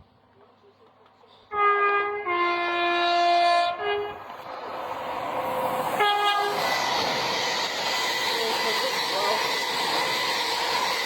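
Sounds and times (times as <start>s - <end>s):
train rumble: 0.0s - 11.0s
two-tone train horn: 1.5s - 4.2s, 6.0s - 6.8s.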